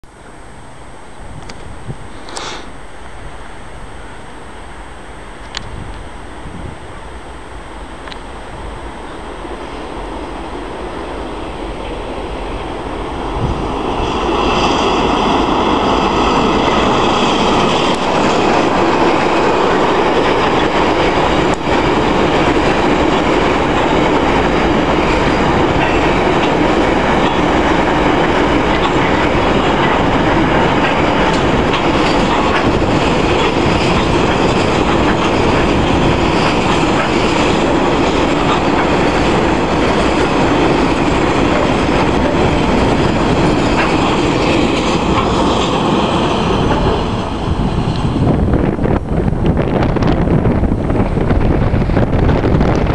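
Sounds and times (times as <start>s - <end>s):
diesel locomotive whine: 0.0s - 52.9s
train wheels rumbling on rails: 4.0s - 52.9s.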